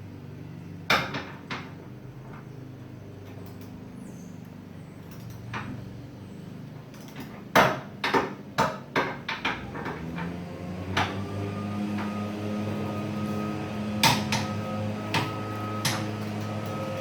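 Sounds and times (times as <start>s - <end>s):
hand tools knocking and clanking: 11.9s - 17.0s.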